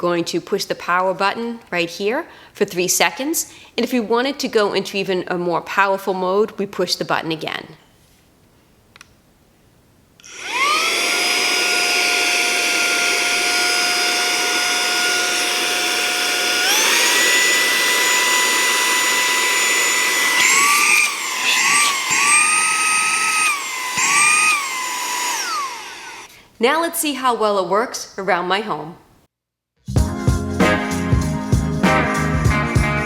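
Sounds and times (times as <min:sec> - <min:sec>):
handheld vacuum motor whine: 0:10.2 - 0:26.3.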